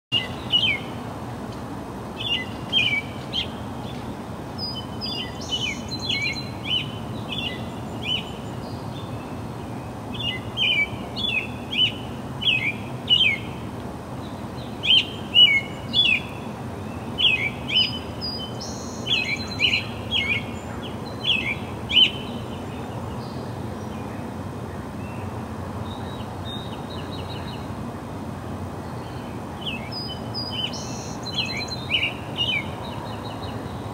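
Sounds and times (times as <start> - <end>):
small birds chirping: 0.1 - 1.0, 2.2 - 13.6, 14.2 - 24.3, 24.9 - 27.8, 28.8 - 33.9
steady low background noise: 0.1 - 33.9.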